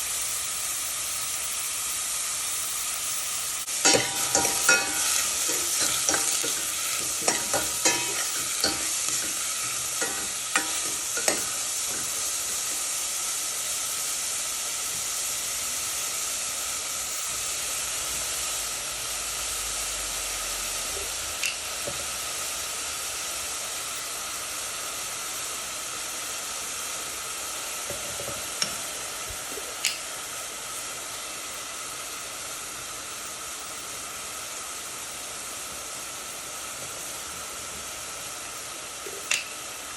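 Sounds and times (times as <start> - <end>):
food sizzling in oil: 0.0 - 39.9
utensil clicking against pan: 3.8 - 12.2, 39.3 - 39.5.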